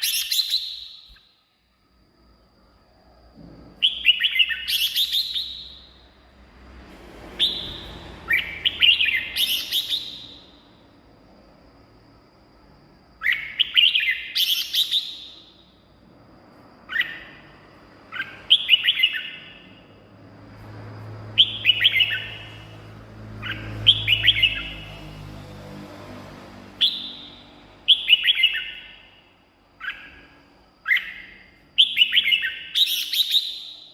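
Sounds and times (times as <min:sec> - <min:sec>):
bird singing warbling phrases: 0:16.9 - 0:17.5, 0:18.1 - 0:19.7, 0:26.9 - 0:29.2, 0:29.8 - 0:33.9.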